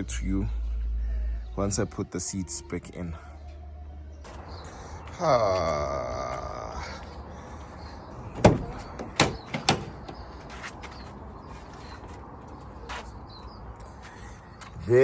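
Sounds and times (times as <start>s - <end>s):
door hinge creaking: 8.2s - 10.2s
door knocks: 8.4s - 10.2s.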